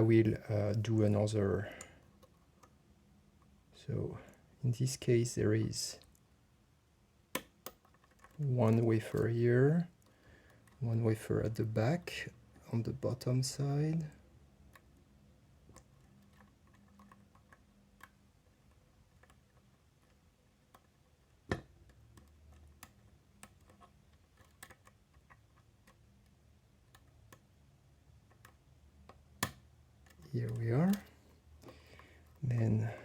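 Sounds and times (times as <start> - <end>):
lock pick ticking and clicking: 7.4 - 9.2, 15.7 - 27.6.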